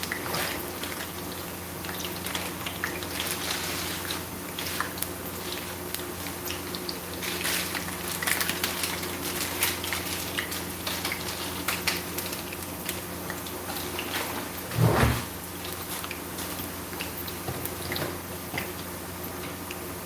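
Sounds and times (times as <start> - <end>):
food sizzling in hot oil: 0.0 - 14.7.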